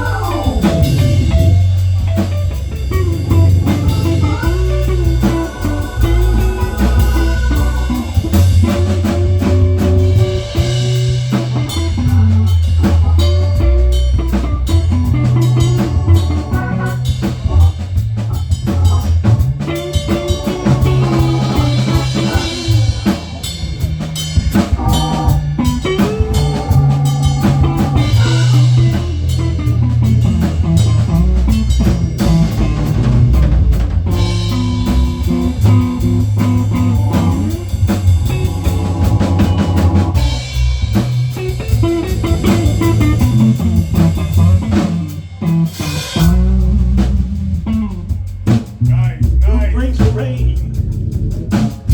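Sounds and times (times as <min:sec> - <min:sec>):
drum kit beat: 0:00.0 - 0:51.9
rock band playing instrumental: 0:00.0 - 0:51.9.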